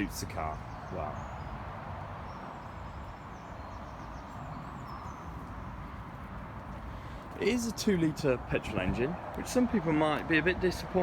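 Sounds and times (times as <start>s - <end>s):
outdoor background noise: 0.0s - 11.0s
faint high bird chirps: 2.3s - 5.6s.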